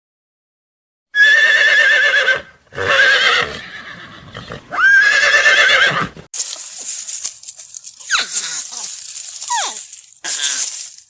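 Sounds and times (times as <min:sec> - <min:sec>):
horse whinnying: 0:01.2 - 0:06.3.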